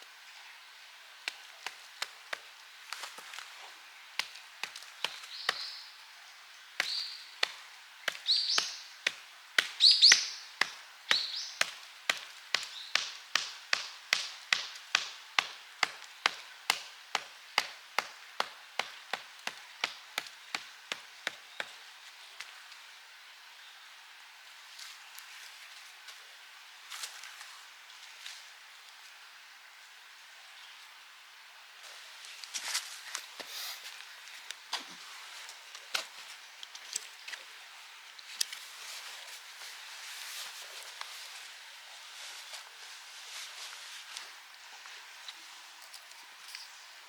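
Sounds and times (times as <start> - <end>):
tool striking wood: 6.8 - 21.7.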